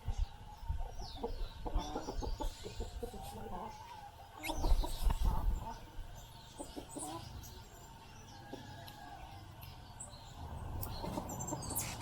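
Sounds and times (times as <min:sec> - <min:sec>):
small birds chirping: 0:00.0 - 0:12.0
hens clucking: 0:00.5 - 0:07.4, 0:10.8 - 0:12.0.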